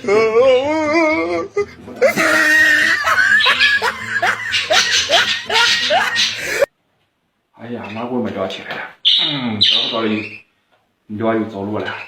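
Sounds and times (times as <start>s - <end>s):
person laughing loudly: 2.0s - 6.7s.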